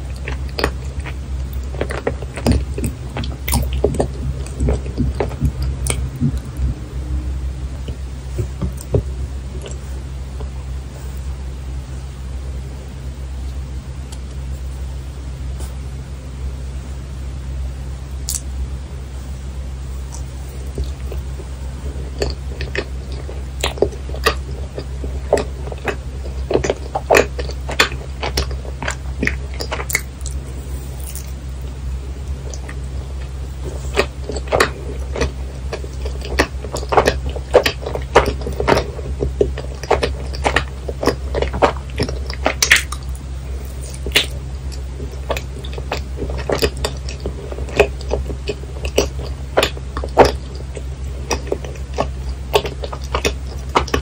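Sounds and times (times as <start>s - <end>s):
sticky chewing mouth clicks: 0.0s - 6.9s, 18.2s - 18.5s, 20.1s - 54.0s
steady low hum: 0.0s - 54.0s.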